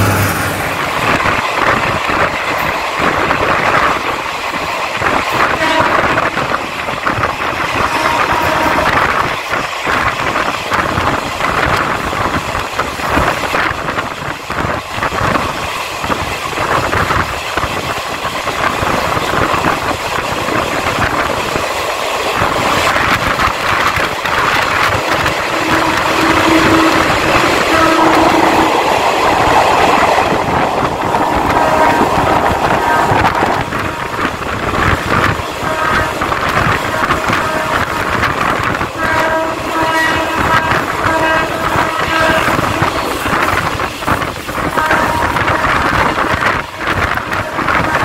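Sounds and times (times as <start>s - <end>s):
train wheels rattling on rails: 0.0s - 48.0s
wind rushing past window: 0.0s - 48.0s
train horn blasts: 5.4s - 6.5s, 7.7s - 9.2s, 25.2s - 28.9s, 31.0s - 34.2s, 35.6s - 43.6s, 44.6s - 48.0s.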